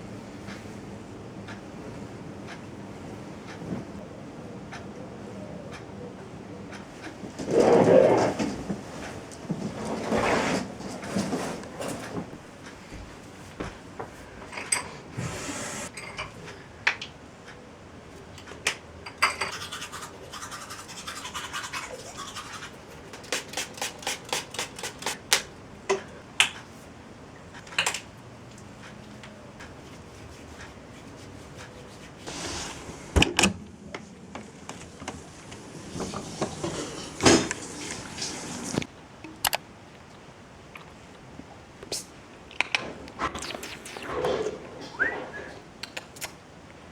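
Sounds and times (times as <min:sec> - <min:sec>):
scratching and rubbing: 0:19.5 - 0:25.2, 0:29.8 - 0:33.0.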